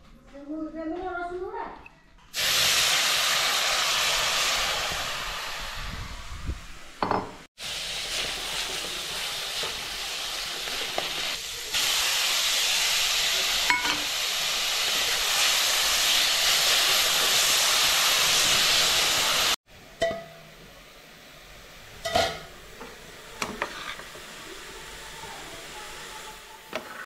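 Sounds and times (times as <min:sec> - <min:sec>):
greens sizzling in oil: 0:02.3 - 0:27.0
metal lid clink: 0:13.7 - 0:14.0.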